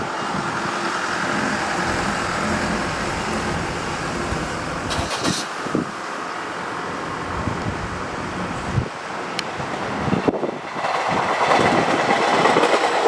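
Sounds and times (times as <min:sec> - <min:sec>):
electric train rumbling: 0:00.0 - 0:13.0
faint whine: 0:00.8 - 0:08.8.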